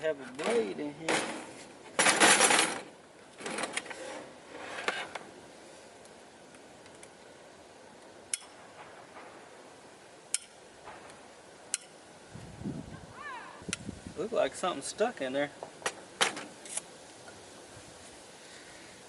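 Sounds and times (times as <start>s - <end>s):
clattering of hard parts: 0.4s - 5.2s.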